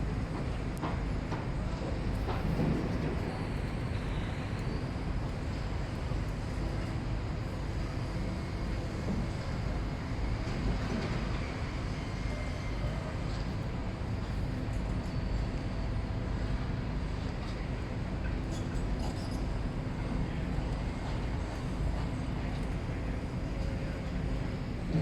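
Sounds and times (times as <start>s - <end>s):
heavy machinery rumbling: 22.9s - 25.0s.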